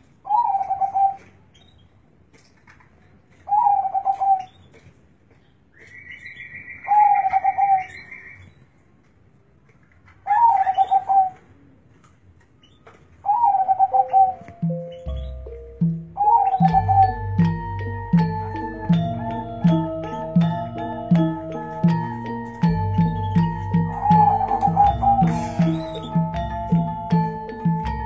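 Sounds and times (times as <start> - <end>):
dove cooing: 13.2 - 28.0
music: 14.4 - 28.0.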